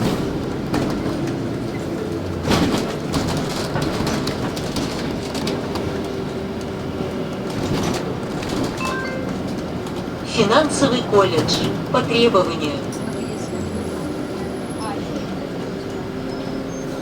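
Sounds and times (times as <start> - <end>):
bus engine and road noise: 0.0 - 17.0.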